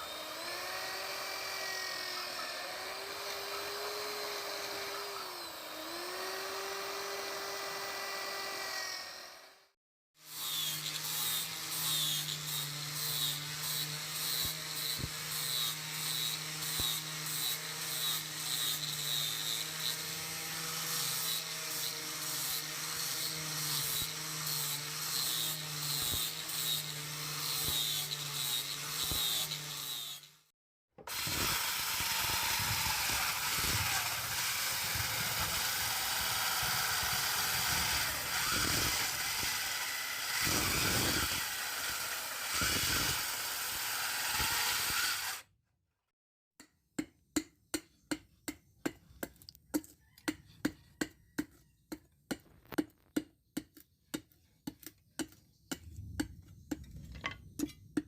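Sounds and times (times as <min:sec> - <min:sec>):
rough hissing tool work: 0:00.0 - 0:08.6, 0:31.1 - 0:45.4
power tool motor humming: 0:00.0 - 0:09.6, 0:31.0 - 0:45.4.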